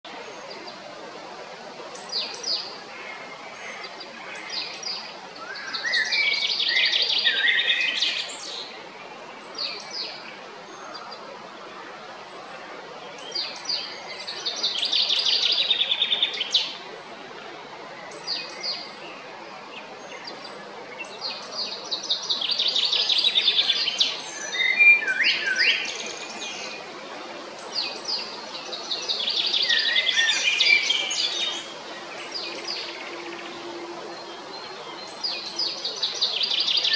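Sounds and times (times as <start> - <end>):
faint steady hiss: 0.1 - 36.9.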